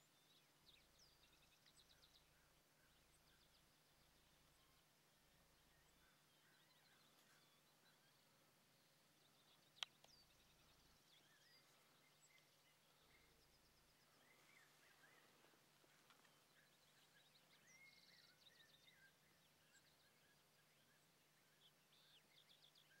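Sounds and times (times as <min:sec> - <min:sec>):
faint low hum: 0:00.0 - 0:23.0
small birds chirping and trilling: 0:00.0 - 0:23.0.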